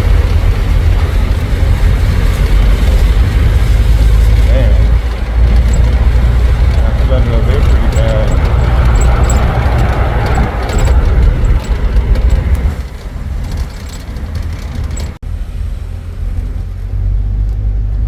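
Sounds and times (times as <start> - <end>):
engine rumble: 0.0 - 18.0
road noise: 0.0 - 18.0.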